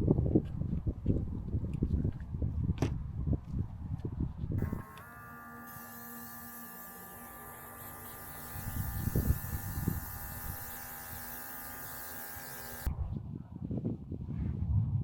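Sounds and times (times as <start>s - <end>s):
electric hum with hiss: 4.6s - 12.9s.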